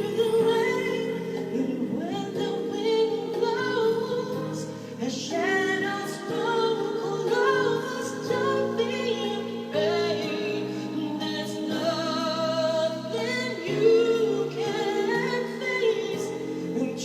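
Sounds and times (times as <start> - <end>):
woman singing pop ballad: 0.0 - 17.0.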